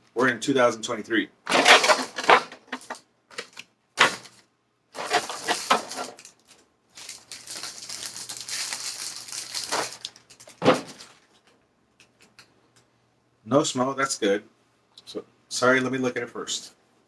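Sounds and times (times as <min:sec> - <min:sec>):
plastic packaging crinkling: 0:05.0 - 0:11.5.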